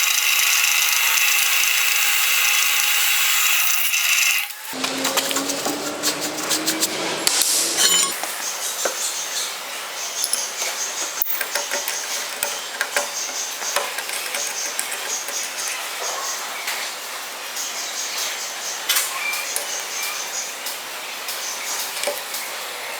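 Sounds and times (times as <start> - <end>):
small power tool running: 0.0 - 7.8
clicks taps and clinks: 10.2 - 15.8.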